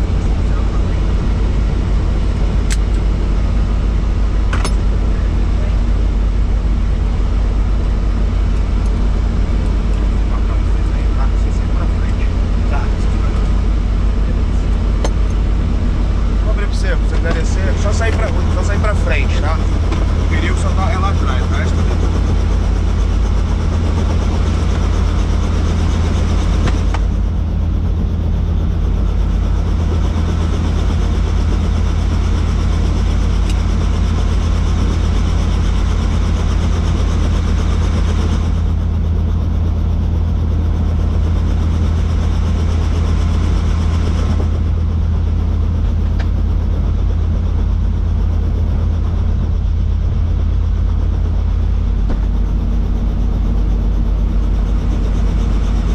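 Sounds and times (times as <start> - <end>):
helicopter rotor and engine drone: 0.0 - 55.9.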